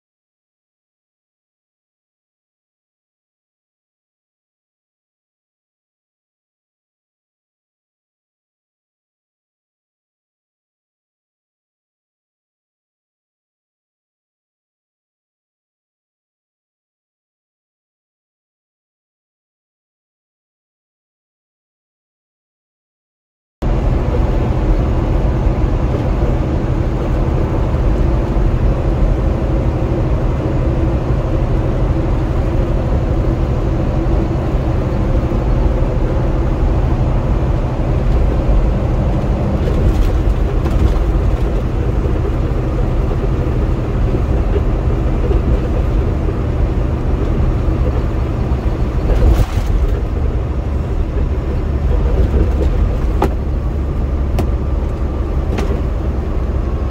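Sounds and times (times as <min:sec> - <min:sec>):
truck engine and road drone: 0:23.6 - 0:56.9.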